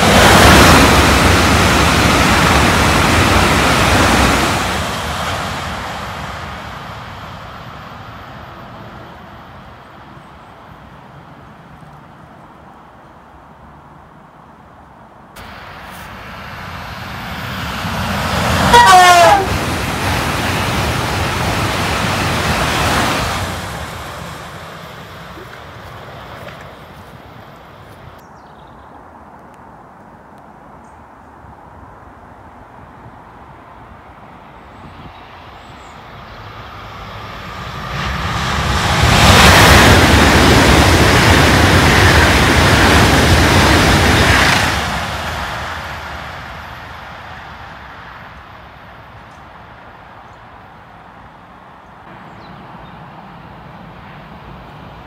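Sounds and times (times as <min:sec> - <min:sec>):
electric train passing: 0:00.0 - 0:28.3, 0:31.4 - 0:55.0
train horn blast: 0:18.6 - 0:19.6.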